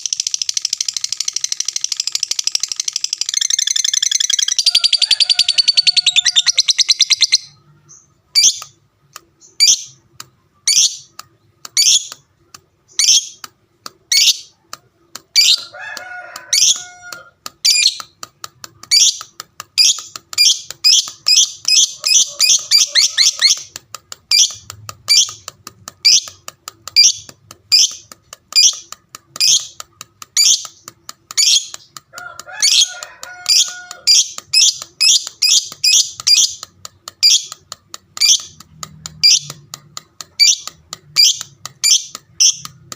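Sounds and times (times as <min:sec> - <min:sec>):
lovebird warbling call: 0:19.8 - 0:23.7.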